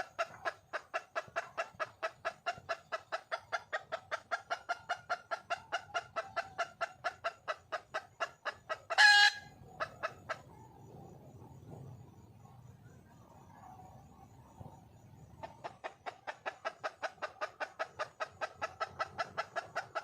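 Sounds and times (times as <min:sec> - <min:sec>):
loud hen squawk: 0:00.0 - 0:10.6, 0:15.4 - 0:20.0
hen clucking: 0:00.0 - 0:10.7, 0:14.4 - 0:20.0.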